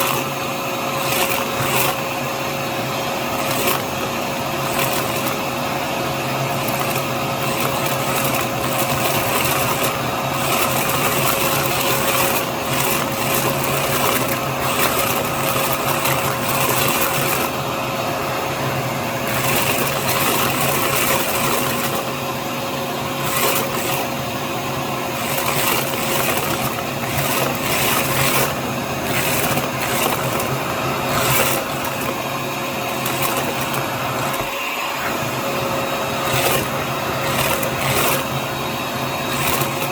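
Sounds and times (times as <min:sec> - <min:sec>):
vacuum cleaner whining: 0:00.0 - 0:39.9
beads clicking and rattling: 0:06.6 - 0:17.6, 0:25.2 - 0:34.5.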